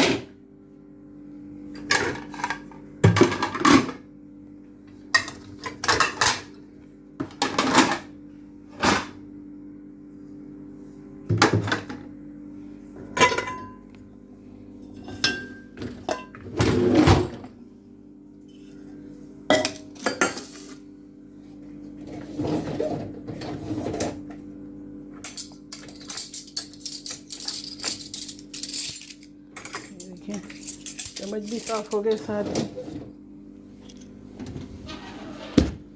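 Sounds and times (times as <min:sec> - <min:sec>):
cutlery clattering: 0:25.3 - 0:32.8.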